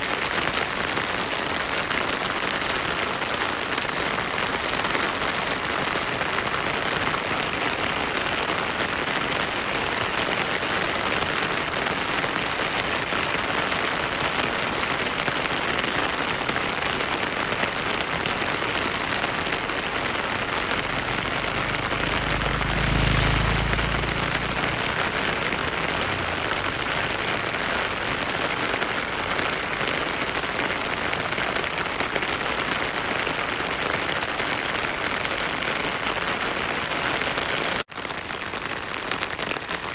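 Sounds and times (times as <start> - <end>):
heavy rain in forest: 0.0 - 39.9
stream flowing: 17.5 - 30.8.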